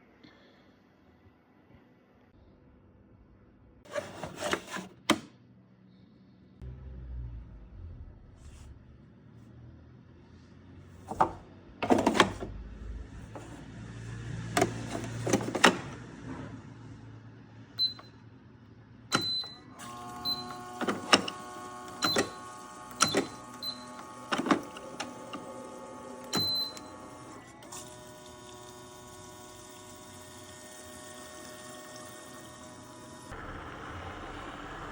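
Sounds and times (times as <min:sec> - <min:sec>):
coffee machine motor humming: 0:11.1 - 0:16.1, 0:19.2 - 0:34.9.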